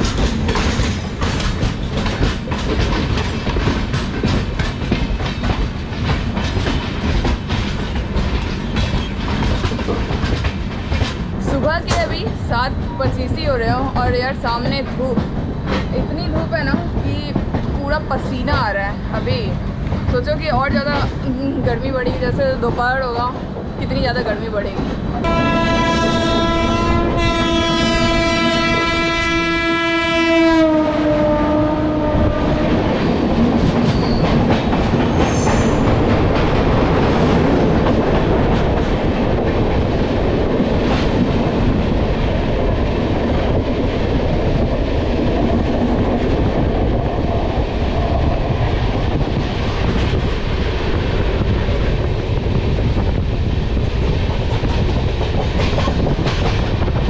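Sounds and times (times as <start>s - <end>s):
train rush and wheel clatter: 0.0s - 57.0s
locomotive horn: 25.2s - 32.8s.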